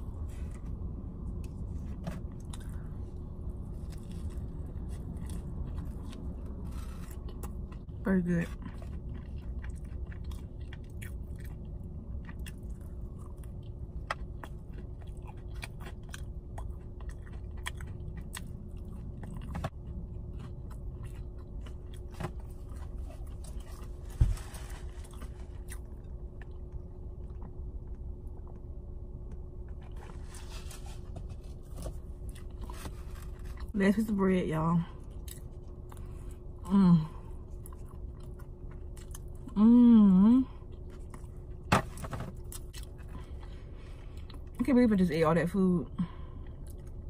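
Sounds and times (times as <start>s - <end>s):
steady low hum: 0.0s - 47.0s
chewing toast: 3.7s - 24.0s, 37.5s - 39.6s
rustling: 22.5s - 25.7s.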